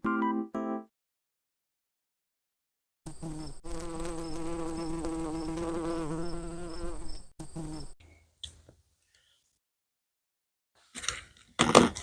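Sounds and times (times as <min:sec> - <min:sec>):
bee buzzing: 0:03.1 - 0:08.0.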